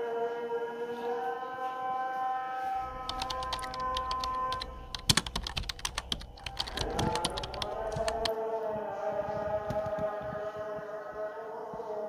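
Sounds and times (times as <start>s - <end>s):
low rumble: 2.8s - 8.3s.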